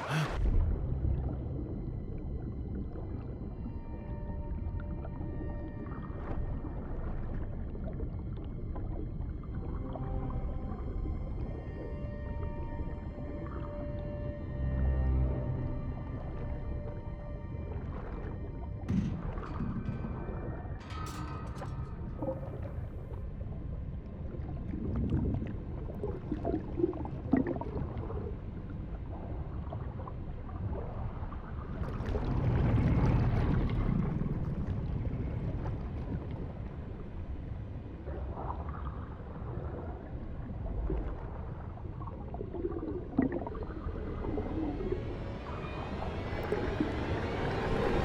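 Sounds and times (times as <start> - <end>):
flood water sloshing and gurgling: 0.0 - 48.0
low rumble: 0.0 - 48.0
small water splashes: 24.1 - 48.0.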